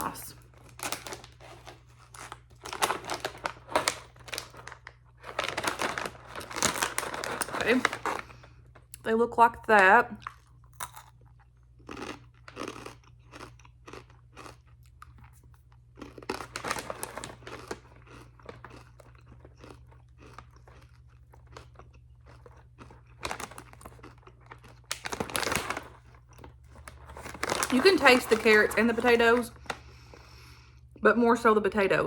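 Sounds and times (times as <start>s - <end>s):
person chewing crunchy snack: 10.2s - 27.8s.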